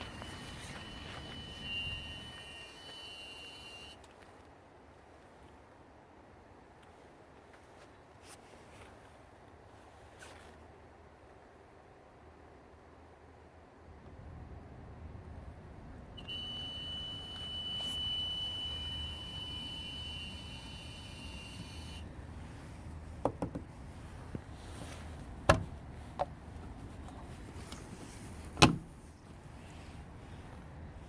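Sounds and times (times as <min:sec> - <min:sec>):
high-pitched whine: 0:00.0 - 0:04.0, 0:16.2 - 0:22.1
sharp clicks and knocks: 0:23.2 - 0:23.7.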